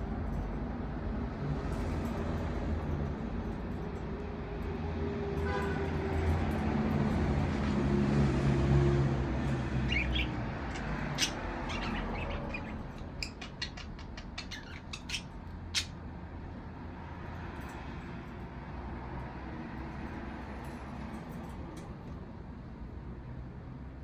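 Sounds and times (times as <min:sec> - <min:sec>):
vehicle engine passing: 0:05.9 - 0:12.7
budgerigars chirping: 0:09.8 - 0:16.0.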